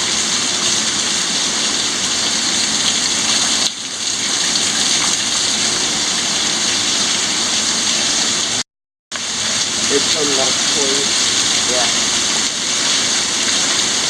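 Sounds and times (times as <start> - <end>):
heavy rain falling: 0.0 - 8.6, 9.2 - 14.0.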